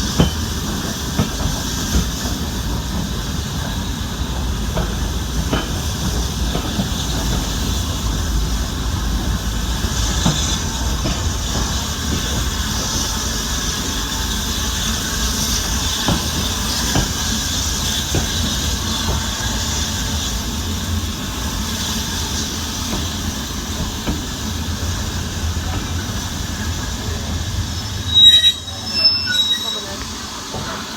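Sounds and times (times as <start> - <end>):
steam hiss: 0.0 - 30.9
train wheels rumbling on rails: 0.0 - 30.9
high-pitched squeal: 27.6 - 30.6.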